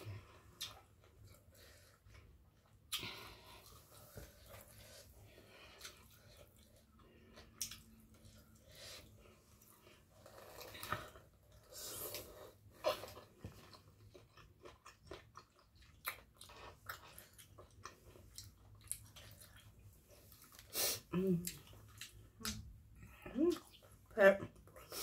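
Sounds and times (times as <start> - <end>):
person chewing food: 0.0 - 25.0
food crunching: 10.1 - 20.7.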